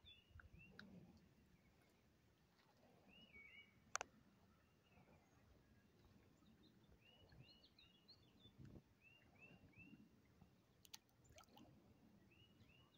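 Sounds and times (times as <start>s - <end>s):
faint bird chirps: 3.0s - 10.1s
faint click: 3.9s - 4.1s, 10.8s - 11.6s.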